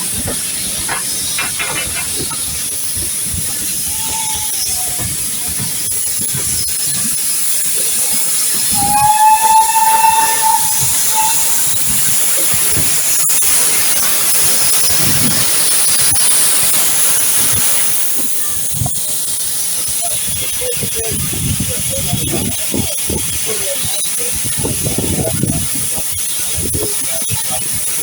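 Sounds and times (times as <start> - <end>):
steam locomotive hissing: 0.0 - 28.0
steam whistle blast: 8.7 - 11.7.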